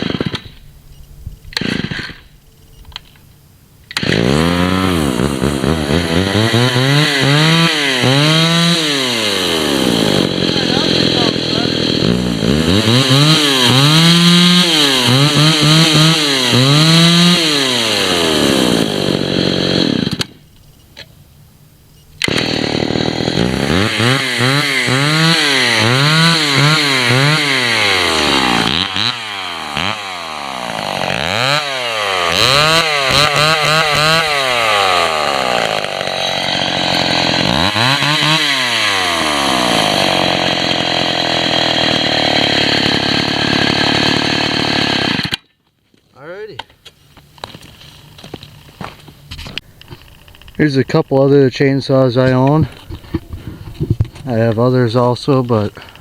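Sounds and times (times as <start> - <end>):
chainsaw revving: 0.0 - 0.5, 1.6 - 2.2, 3.9 - 20.4, 22.2 - 45.4.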